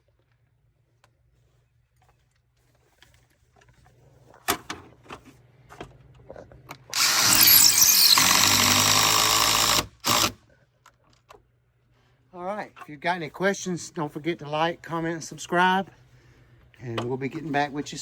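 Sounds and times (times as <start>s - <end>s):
cordless power tool running: 6.9s - 10.4s.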